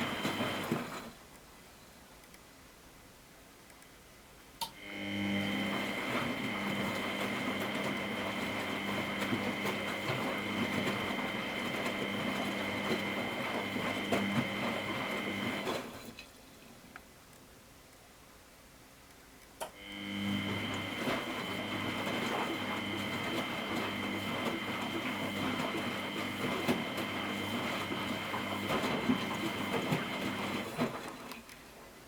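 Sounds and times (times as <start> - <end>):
churning water: 0.0 - 1.1, 5.4 - 16.1, 20.2 - 31.3
washing machine motor whine: 0.0 - 1.1, 4.7 - 16.0, 19.7 - 31.2.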